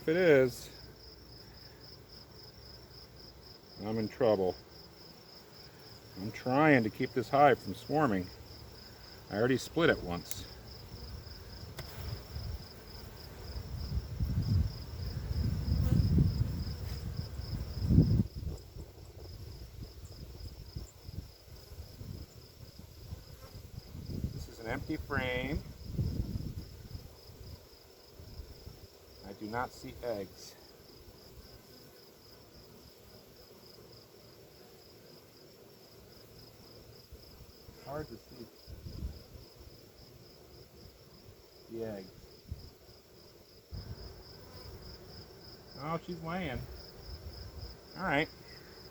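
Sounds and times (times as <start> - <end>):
insect chirping: 0.0 - 48.9.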